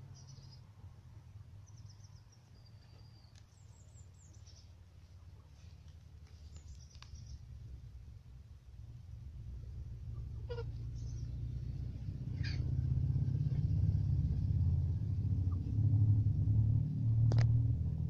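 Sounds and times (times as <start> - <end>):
faint high bird chirps: 0.0 - 0.7, 1.6 - 5.6, 10.2 - 11.4
low background rumble: 0.0 - 18.0.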